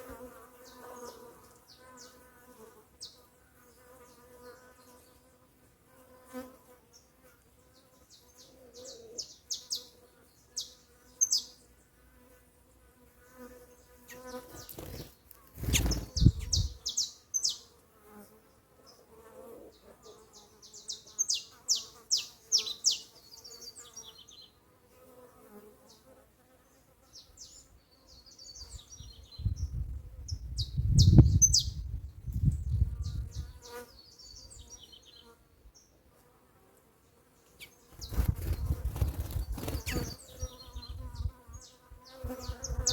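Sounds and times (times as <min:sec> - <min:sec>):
birds chirping: 0:08.1 - 0:11.7, 0:14.1 - 0:17.7, 0:20.3 - 0:24.6, 0:37.4 - 0:42.9
bees buzzing: 0:37.6 - 0:42.9.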